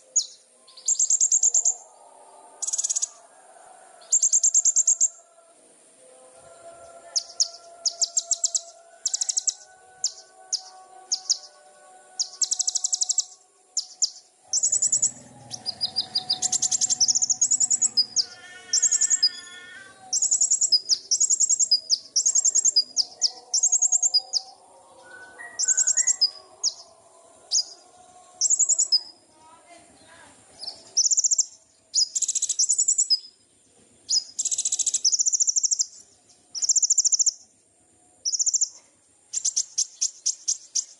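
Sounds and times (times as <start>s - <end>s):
fainter lower bird calls: 0.0s - 5.4s, 6.0s - 40.9s
songbird chirping: 0.0s - 40.9s
lower whistled notes: 6.0s - 18.2s, 20.2s - 29.2s.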